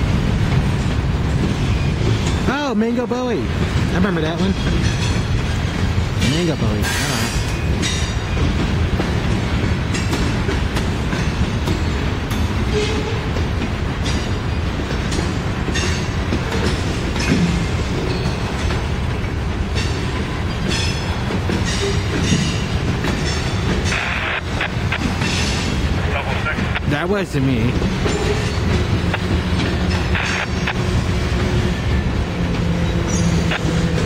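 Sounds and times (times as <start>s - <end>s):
freight train rumbling on rails: 0.0s - 34.0s.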